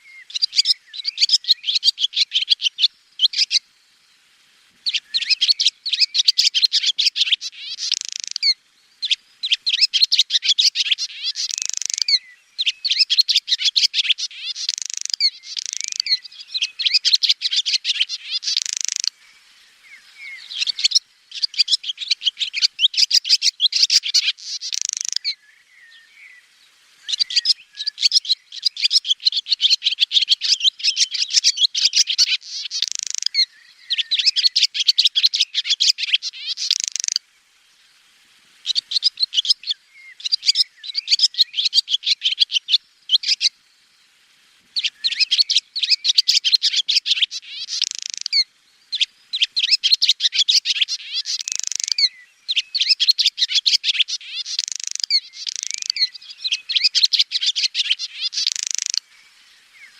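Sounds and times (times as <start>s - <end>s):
swallow singing: 4.9s - 19.1s, 44.8s - 59.0s.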